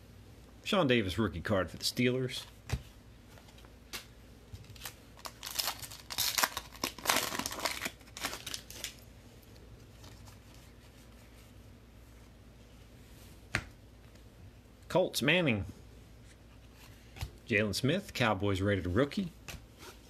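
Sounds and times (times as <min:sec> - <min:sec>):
foil wrapper crinkling and tearing: 0:04.7 - 0:09.0.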